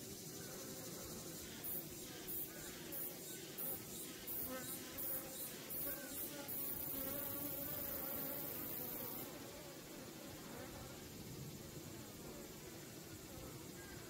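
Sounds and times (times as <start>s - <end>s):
high hiss: 0.0s - 14.0s
honeybees buzzing: 0.4s - 11.0s.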